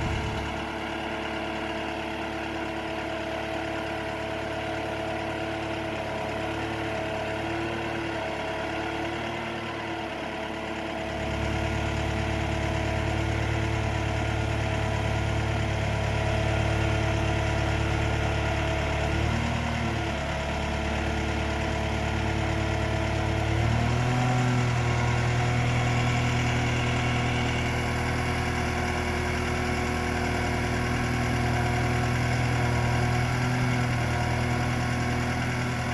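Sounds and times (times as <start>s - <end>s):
lift truck engine running: 0.0s - 1.6s, 11.1s - 35.9s.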